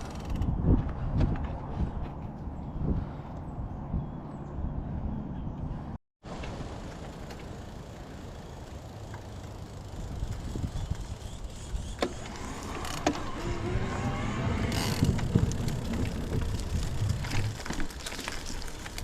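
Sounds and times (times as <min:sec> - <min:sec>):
wind rumbling on microphone: 0:00.0 - 0:06.0, 0:10.0 - 0:19.0
bike tyre noise on path: 0:06.3 - 0:19.0.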